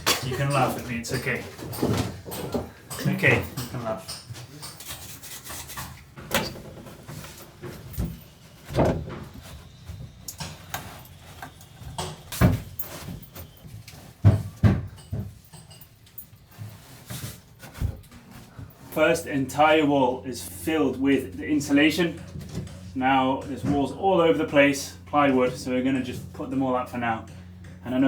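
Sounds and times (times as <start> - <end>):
handling noise: 5.8 - 19.0.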